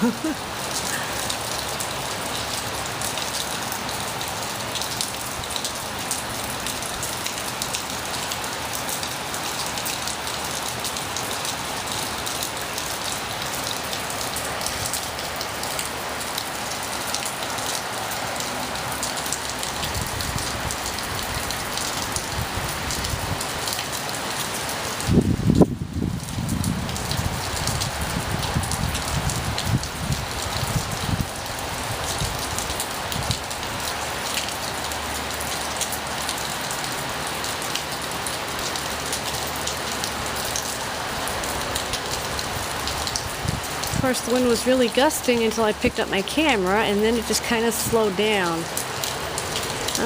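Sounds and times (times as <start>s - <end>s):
heavy rain falling: 0.0s - 50.0s.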